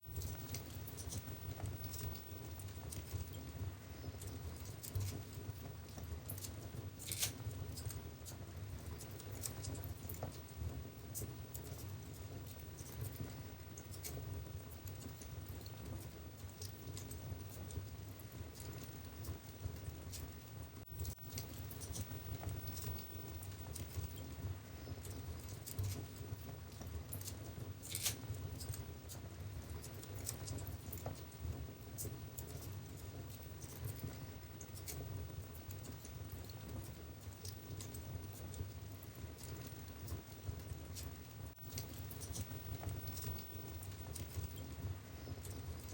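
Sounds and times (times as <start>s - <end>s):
fire flames rumbling: 0.0s - 45.9s
wood fire crackling and popping: 0.0s - 45.9s.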